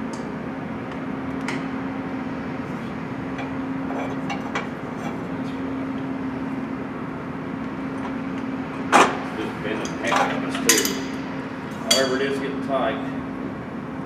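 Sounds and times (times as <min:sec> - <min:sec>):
steady mechanical hum: 0:00.0 - 0:14.0
hand tools clinking on metal: 0:09.8 - 0:11.2, 0:11.8 - 0:12.2
sharp metallic clank: 0:09.9 - 0:11.2.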